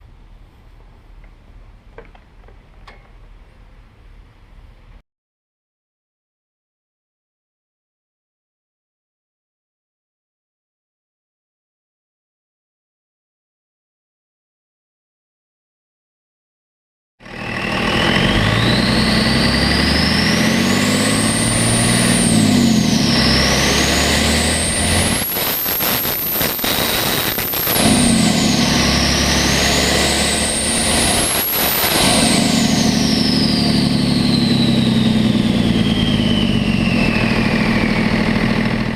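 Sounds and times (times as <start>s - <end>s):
turbo whistling: 17.2s - 38.7s
diesel engine revving: 17.2s - 38.9s.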